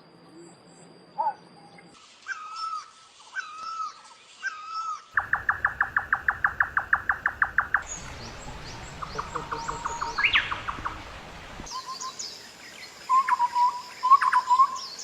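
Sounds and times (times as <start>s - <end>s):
whistled bird calls: 0.3s - 15.0s
birds calling: 4.7s - 12.2s.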